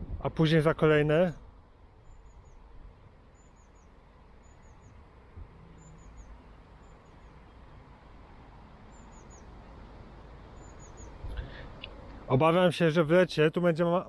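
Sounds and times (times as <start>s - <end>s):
songbird calling: 2.0s - 8.0s, 8.8s - 12.2s.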